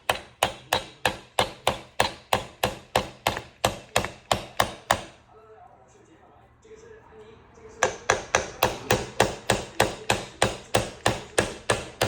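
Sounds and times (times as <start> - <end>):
hammer striking nail into wood: 0.0 - 5.2, 7.8 - 12.0.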